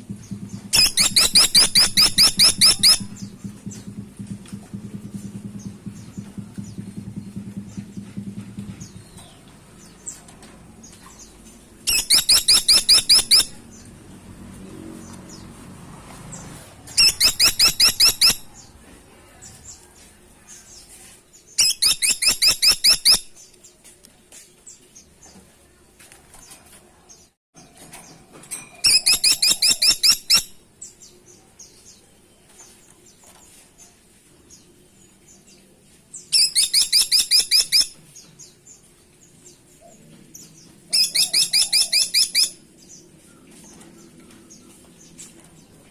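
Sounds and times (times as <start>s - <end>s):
woodpecker calling: 0.7s - 3.4s, 11.9s - 13.6s, 16.9s - 18.6s, 21.6s - 23.3s, 40.9s - 42.6s.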